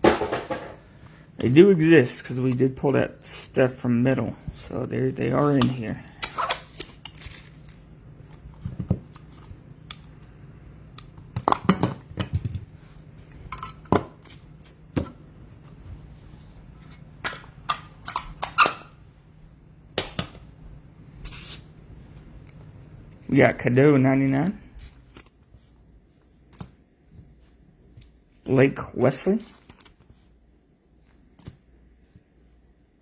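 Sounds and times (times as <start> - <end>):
faint room hum: 0.0 - 33.0
cards rustling on table: 6.5 - 7.8.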